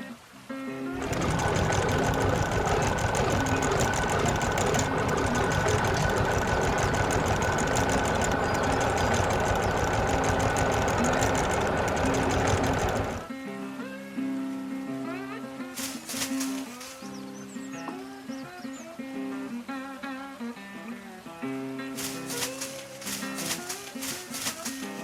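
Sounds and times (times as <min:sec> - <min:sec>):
engine chattering: 0:01.0 - 0:13.3, 0:15.8 - 0:17.2, 0:22.0 - 0:25.0.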